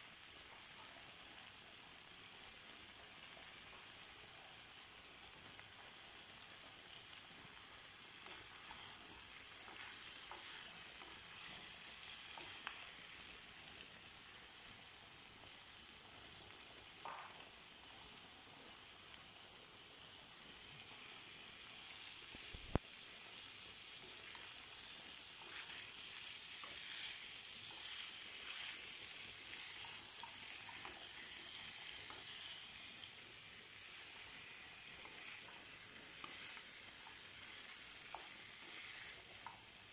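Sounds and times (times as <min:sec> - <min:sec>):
food frying in metal pan: 0:00.0 - 0:39.9
wooden spoon stirring: 0:08.4 - 0:13.0, 0:24.1 - 0:33.0.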